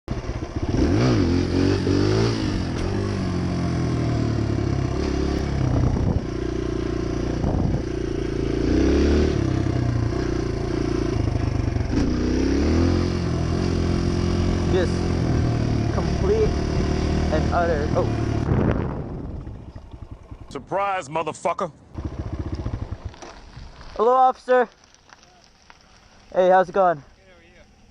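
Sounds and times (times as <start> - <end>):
dirt bike engine revving: 0.1 - 20.6, 21.9 - 23.4.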